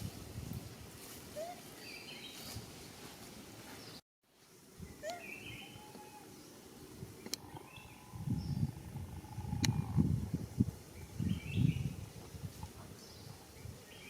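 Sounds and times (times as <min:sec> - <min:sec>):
birds chirping: 0:01.4 - 0:02.6, 0:04.8 - 0:14.0.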